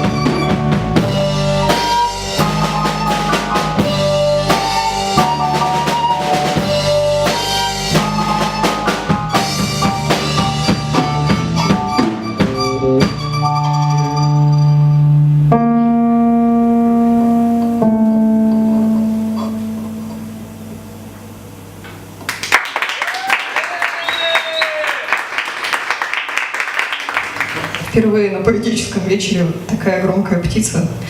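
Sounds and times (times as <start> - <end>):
drum kit beating: 0.0 - 14.2, 15.3 - 22.2
live band playing instrumental: 0.0 - 20.9
long held notes: 0.0 - 22.2.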